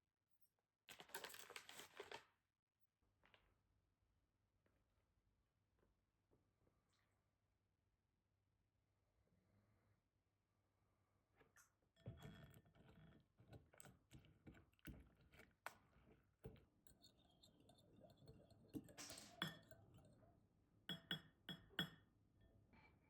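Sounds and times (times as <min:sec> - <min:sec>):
dishware taps and clicks: 0:18.0 - 0:20.0, 0:20.9 - 0:22.0.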